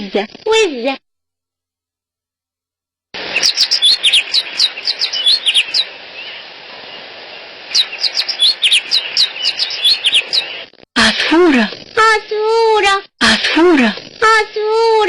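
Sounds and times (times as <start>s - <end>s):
small songbird chirping: 3.2s - 10.7s
steady hiss: 3.2s - 15.0s.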